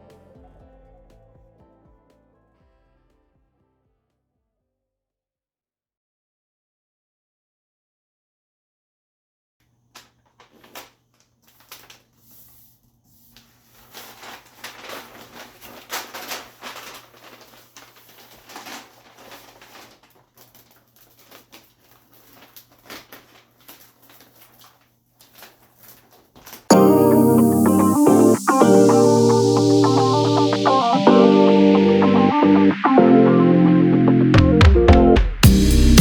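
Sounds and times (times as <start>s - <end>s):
music: 0.0s - 3.5s, 26.7s - 36.0s
rustling and crinkling: 9.9s - 26.7s.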